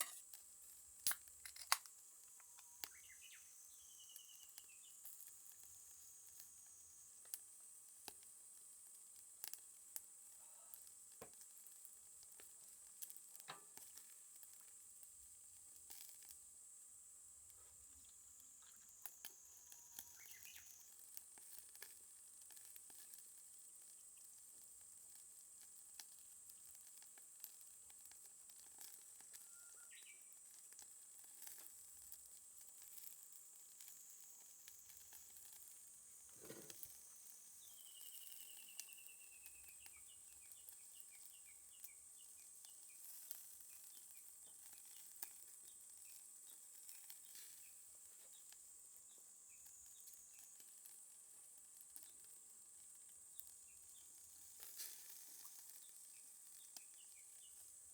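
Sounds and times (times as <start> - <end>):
fire popping: 0.0 - 3.3, 20.1 - 37.8
fire crackling and sizzling: 0.0 - 57.9.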